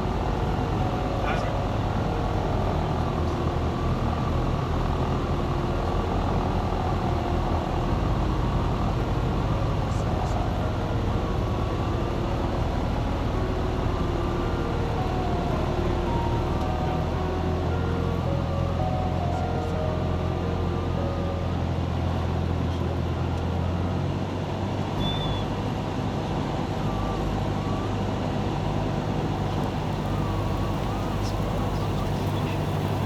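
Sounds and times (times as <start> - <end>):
airplane engine and propeller: 28.3 - 33.0.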